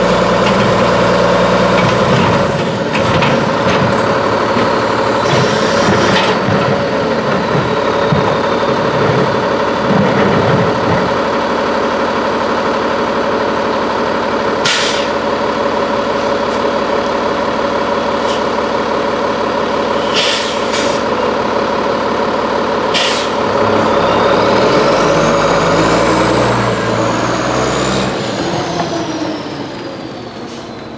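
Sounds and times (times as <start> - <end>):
garbage truck engine hum: 0.0 - 30.9
air brake hisses: 14.6 - 15.2, 18.1 - 19.0, 19.6 - 21.2, 22.9 - 23.5.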